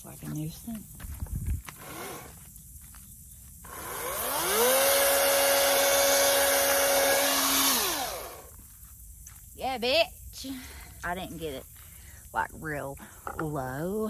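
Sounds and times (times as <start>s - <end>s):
electric chainsaw motor whine: 1.7s - 2.4s, 3.6s - 8.6s.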